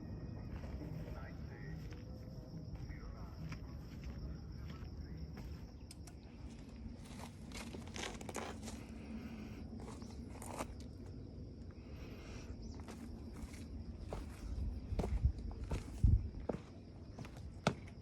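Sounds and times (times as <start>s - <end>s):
footsteps on a trail: 0.3s - 9.1s, 12.6s - 18.0s.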